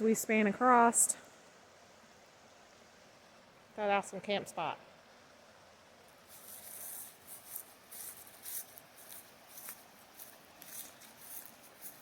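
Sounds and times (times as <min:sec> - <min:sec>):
faint steady hiss: 0:00.0 - 0:12.0
footsteps crunching on gravel: 0:06.3 - 0:12.0.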